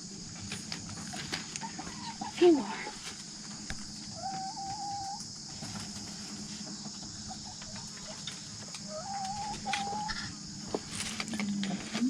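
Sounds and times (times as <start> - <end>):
chickens clucking: 0.3 - 12.0
drawn-out hen call: 8.9 - 10.4.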